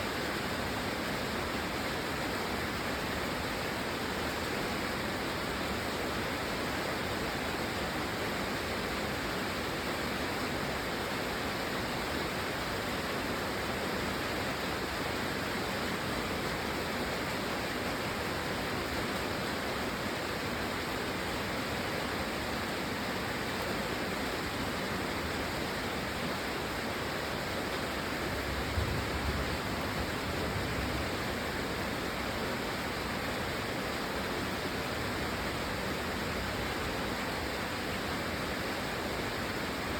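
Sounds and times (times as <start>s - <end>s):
heavy rain falling: 12.5s - 39.9s.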